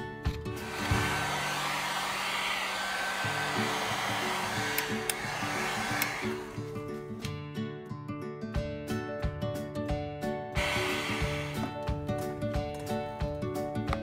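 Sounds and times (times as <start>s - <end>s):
electric blower running: 0.6s - 6.7s, 10.6s - 11.9s
acoustic guitar music: 6.6s - 13.5s.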